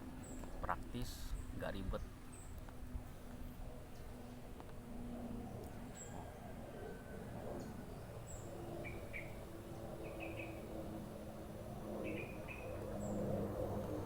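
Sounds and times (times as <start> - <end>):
small birds chirping: 0.0 - 2.7, 7.6 - 10.8, 12.0 - 13.3
steady low hum: 0.0 - 14.0.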